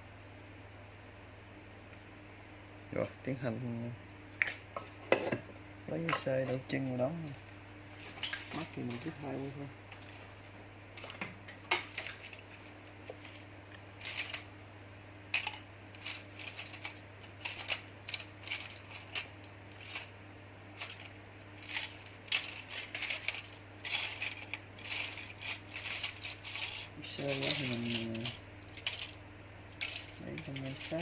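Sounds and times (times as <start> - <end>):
steady low hum: 0.0 - 31.0
small parts clicking and clinking: 14.0 - 14.5, 15.3 - 20.1, 20.8 - 29.2, 29.8 - 31.0.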